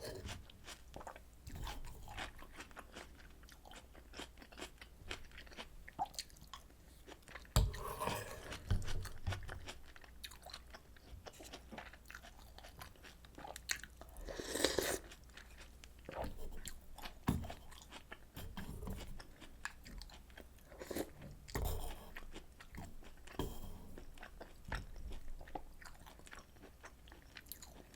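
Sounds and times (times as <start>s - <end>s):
chewing and crunching: 0.0s - 27.9s.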